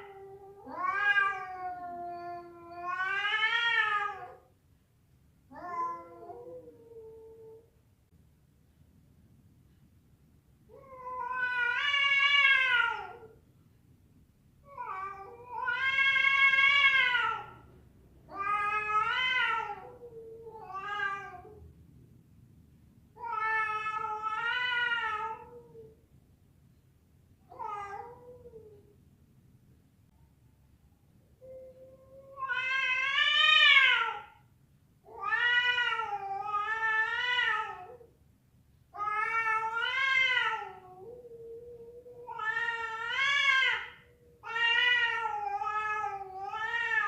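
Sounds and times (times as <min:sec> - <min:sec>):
cat yowling: 0:00.0 - 0:04.4, 0:05.5 - 0:07.6, 0:10.8 - 0:13.3, 0:14.8 - 0:17.6, 0:18.3 - 0:21.6, 0:27.5 - 0:28.8, 0:31.4 - 0:34.4, 0:35.1 - 0:38.1, 0:39.0 - 0:47.0.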